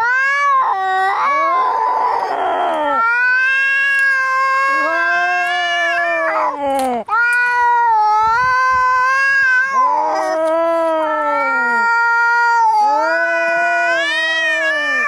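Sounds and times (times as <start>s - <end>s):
cats yowling in a fight: 0.0s - 15.0s.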